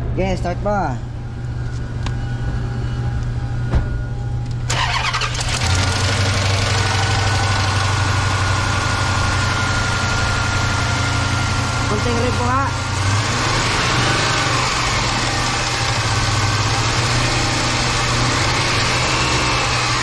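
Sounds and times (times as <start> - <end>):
engine running steadily: 1.1 - 20.0
engine cranking: 4.7 - 7.2.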